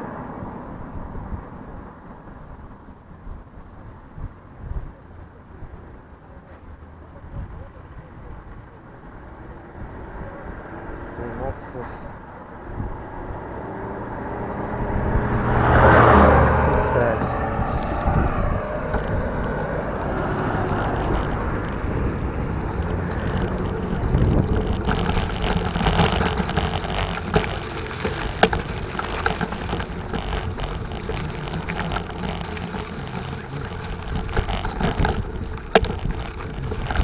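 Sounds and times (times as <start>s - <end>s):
bicycle rolling: 0.0s - 37.0s
bike rattling on rough dirt: 0.0s - 37.0s
wind on microphone: 9.7s - 37.0s.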